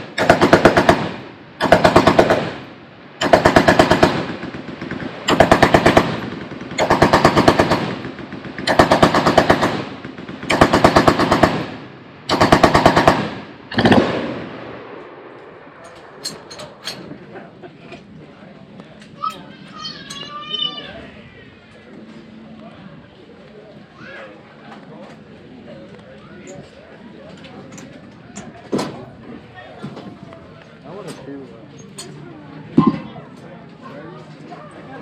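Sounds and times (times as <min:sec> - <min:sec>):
machine gun bursts: 0:12.3 - 0:14.3.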